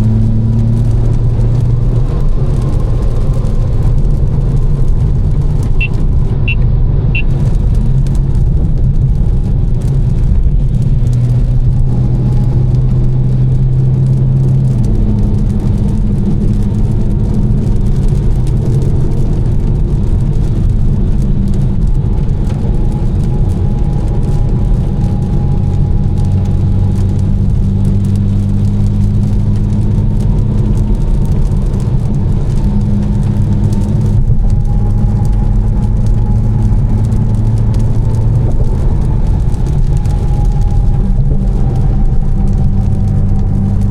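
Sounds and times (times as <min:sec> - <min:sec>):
car engine cruising: 0:00.0 - 0:43.9.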